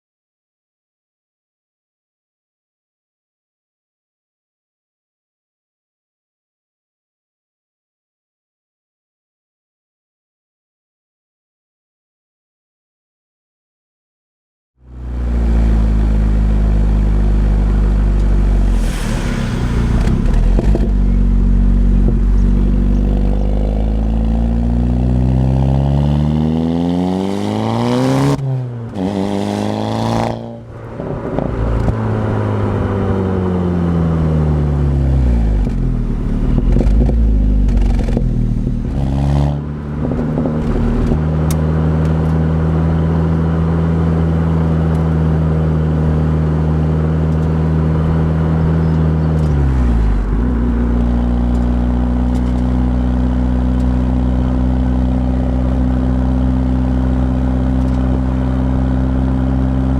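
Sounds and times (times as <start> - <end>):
car engine exhaust drone: 14.8 - 59.9
exhaust cracks: 15.5 - 25.3, 35.2 - 43.0, 47.1 - 58.6.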